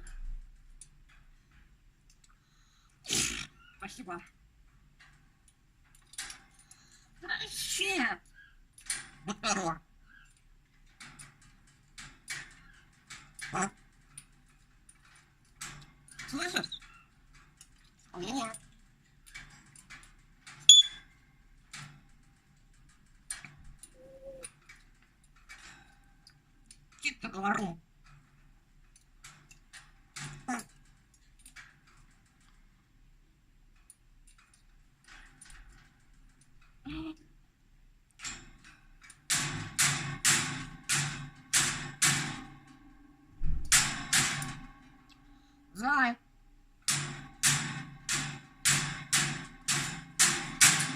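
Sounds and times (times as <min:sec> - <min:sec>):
parrot high-pitched squeak: 0:20.7 - 0:21.0.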